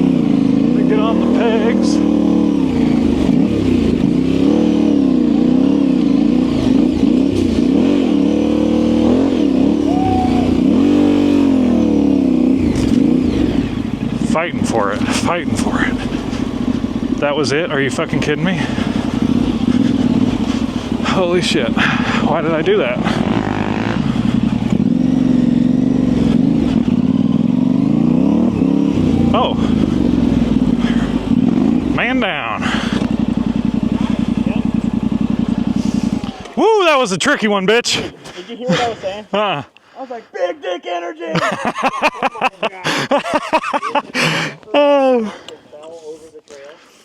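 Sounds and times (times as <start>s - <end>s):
motorcycle engine revving: 0.0s - 37.5s.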